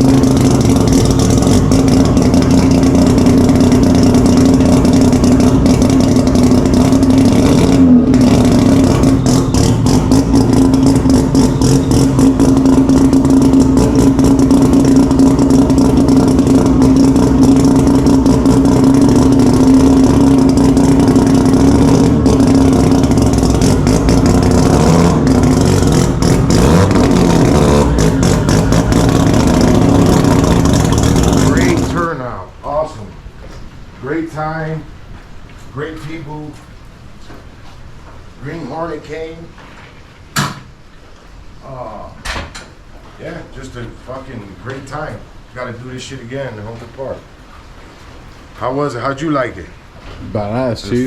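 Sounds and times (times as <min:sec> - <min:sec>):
car engine revving high: 0:00.0 - 0:32.2
rapid crackling clatter: 0:00.0 - 0:32.2.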